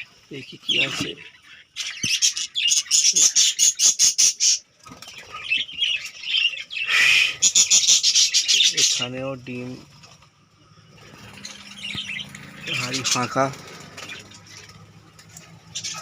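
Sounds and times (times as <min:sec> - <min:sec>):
budgerigars squawking: 0:00.0 - 0:09.8, 0:10.8 - 0:14.8, 0:15.7 - 0:16.0.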